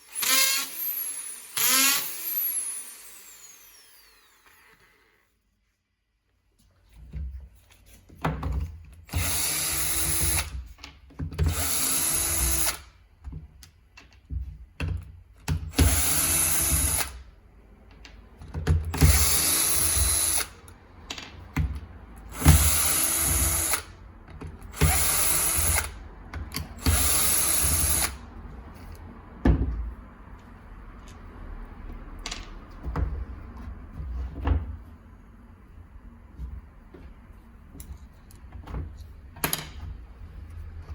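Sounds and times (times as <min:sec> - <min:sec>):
hammer drill spinning up: 0:00.0 - 0:05.2, 0:09.1 - 0:10.5, 0:11.5 - 0:12.8, 0:15.7 - 0:17.2, 0:19.0 - 0:20.6, 0:22.3 - 0:23.9, 0:24.7 - 0:26.0, 0:26.8 - 0:28.2.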